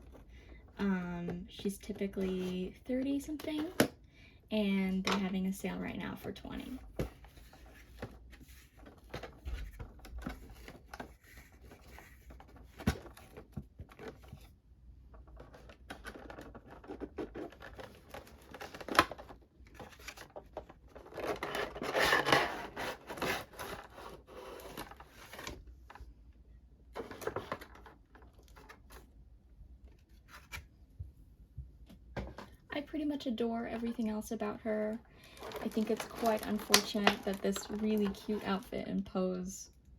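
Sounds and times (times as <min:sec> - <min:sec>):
packaging being opened by hand: 0:35.3 - 0:38.4.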